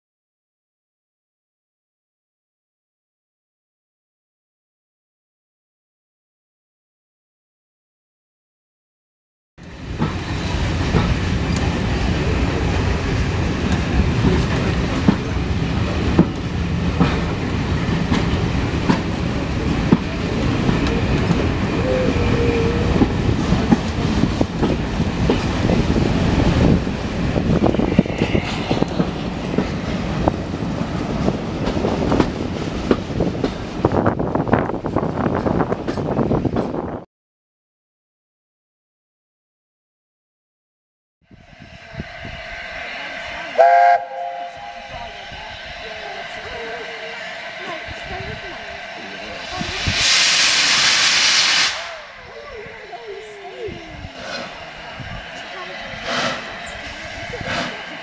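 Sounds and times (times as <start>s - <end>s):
train wheels rumbling on track: 9.6s - 37.1s, 41.2s - 58.0s.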